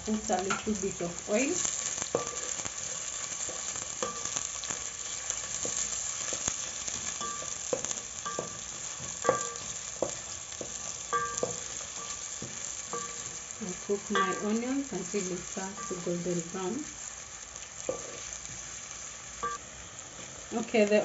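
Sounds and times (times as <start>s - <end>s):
onions sizzling in hot oil: 0.0s - 21.0s
spoon clinking and scraping pot: 2.1s - 13.4s.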